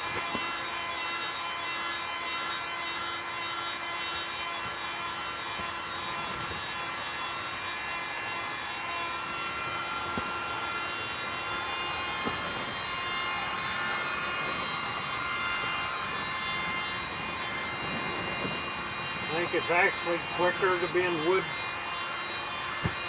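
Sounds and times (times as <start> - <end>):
heat gun whine and air hiss: 0.0 - 23.0.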